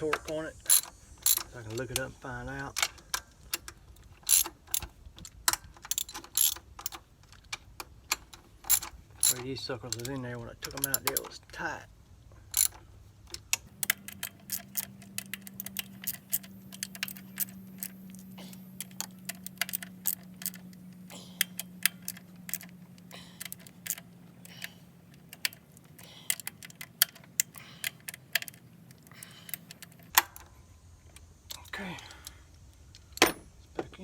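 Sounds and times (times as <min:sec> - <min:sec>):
metal tools clinking: 0:00.0 - 0:03.2, 0:08.2 - 0:11.5, 0:13.8 - 0:30.4
ratchet wrench clicking: 0:00.1 - 0:07.0, 0:08.1 - 0:11.4, 0:12.5 - 0:12.8, 0:13.4 - 0:30.4.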